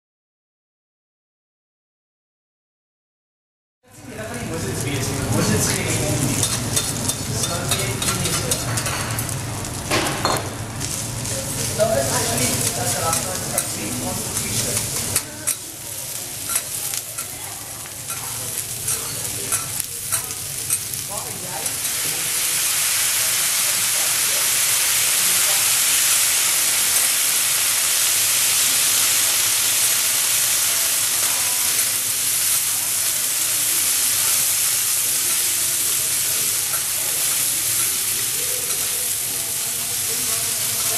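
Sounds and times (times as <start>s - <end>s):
food sizzling on griddle: 3.9s - 40.9s
metal spatulas scraping griddle: 6.3s - 9.4s, 18.0s - 21.0s.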